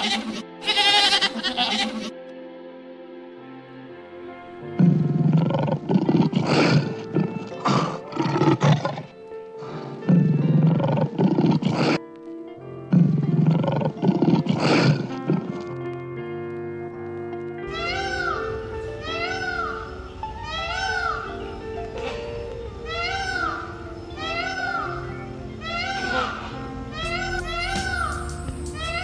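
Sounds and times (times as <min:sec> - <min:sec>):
background music: 0:00.0 - 0:29.0
lion roaring: 0:04.8 - 0:12.0, 0:12.9 - 0:15.8.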